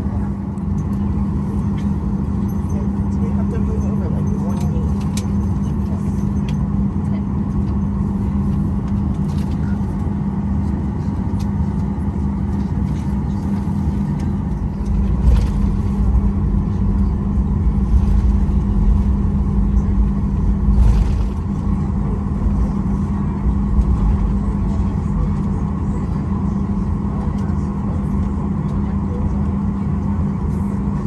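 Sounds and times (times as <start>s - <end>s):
airplane engines droning: 0.0s - 31.0s
low cabin rumble: 0.0s - 31.0s.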